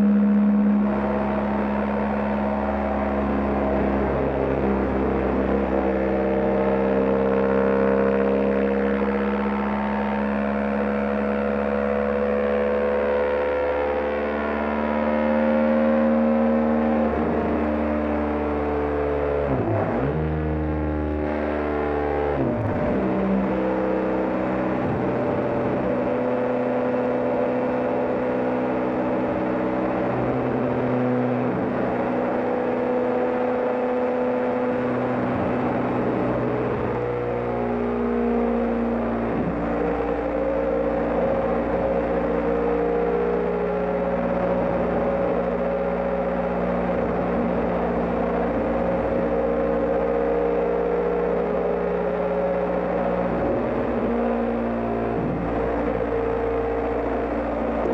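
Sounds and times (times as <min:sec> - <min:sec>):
motorcycle engine cruising: 0:00.0 - 0:57.9.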